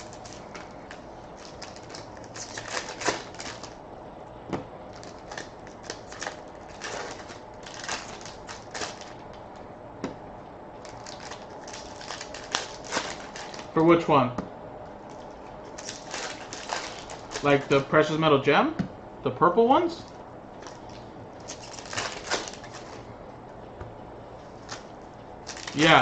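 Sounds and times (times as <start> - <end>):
hands handling card packaging: 0.0 - 3.8, 4.9 - 9.4, 10.8 - 13.9, 15.1 - 17.8, 20.6 - 23.1, 24.6 - 26.0.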